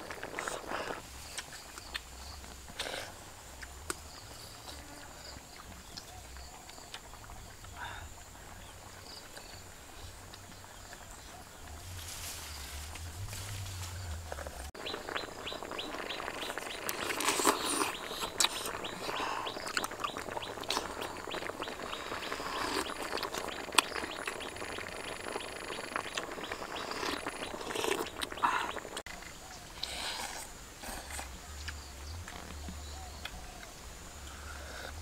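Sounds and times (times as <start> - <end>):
slurping and chewing: 0.0 - 11.4, 14.3 - 32.5
bird chirping rapidly: 14.8 - 16.9, 17.7 - 29.0.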